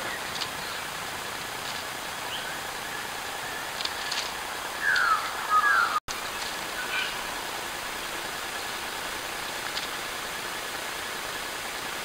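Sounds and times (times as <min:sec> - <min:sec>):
steady hiss: 0:00.0 - 0:12.0
bird chirps and clicks: 0:03.7 - 0:05.3.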